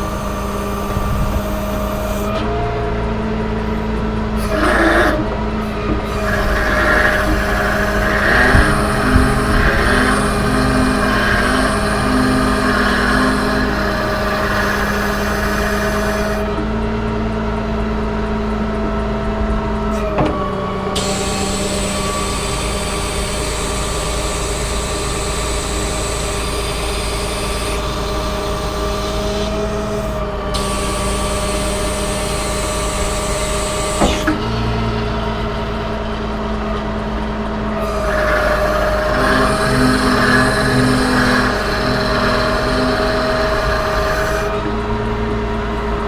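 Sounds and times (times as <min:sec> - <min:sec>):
diesel truck engine running: 0:00.0 - 0:46.0
hydraulic hiss: 0:04.4 - 0:16.5, 0:21.0 - 0:34.4, 0:37.8 - 0:44.8.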